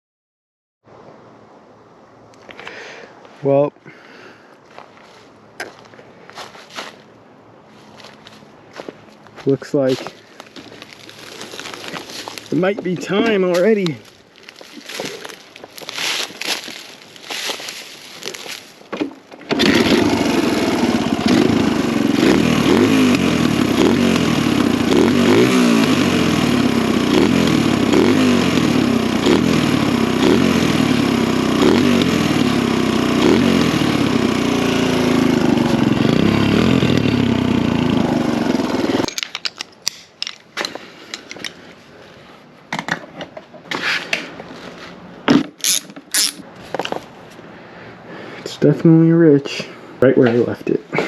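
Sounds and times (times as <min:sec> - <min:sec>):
dirt bike engine running: 0:19.5 - 0:39.1.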